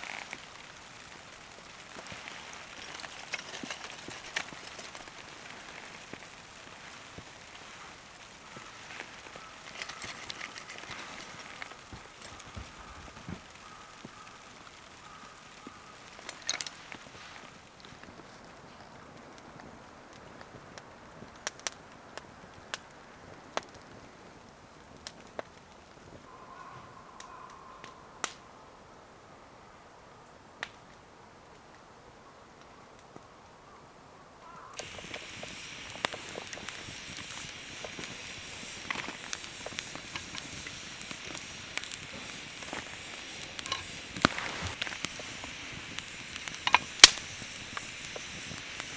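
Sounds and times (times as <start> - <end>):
wood fire crackling: 0.0 - 26.4, 34.4 - 48.9.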